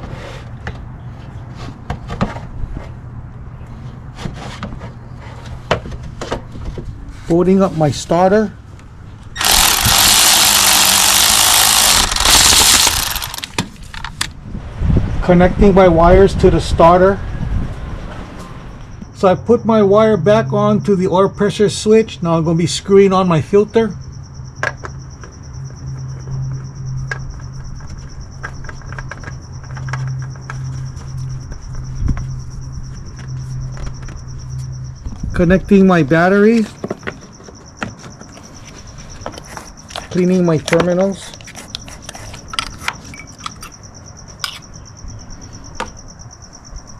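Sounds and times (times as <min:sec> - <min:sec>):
crickets chirping: 0:07.4 - 0:14.9, 0:17.2 - 0:46.9
cordless ratchet running: 0:09.4 - 0:13.6.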